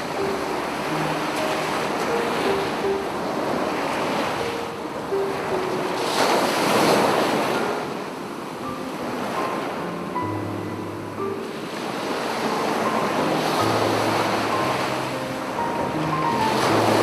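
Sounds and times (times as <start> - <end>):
faint piano notes: 0.0 - 17.0
sea waves washing onto beach: 0.0 - 17.0.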